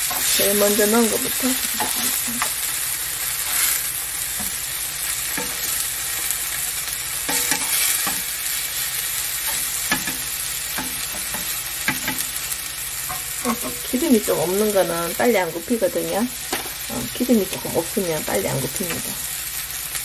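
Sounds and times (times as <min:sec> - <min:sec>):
metal tongs scraping pan: 0:00.0 - 0:02.6, 0:03.4 - 0:04.6, 0:05.3 - 0:05.8, 0:07.3 - 0:08.3, 0:13.0 - 0:14.0, 0:18.5 - 0:19.2
mushrooms sizzling in oil: 0:00.0 - 0:20.0.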